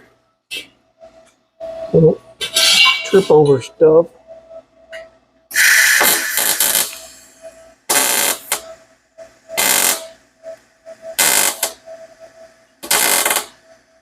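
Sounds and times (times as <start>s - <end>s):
faint steady hum: 0.0s - 14.0s
welder crackling: 5.6s - 7.1s, 7.9s - 8.6s, 9.6s - 10.1s, 11.2s - 11.8s, 12.8s - 13.6s.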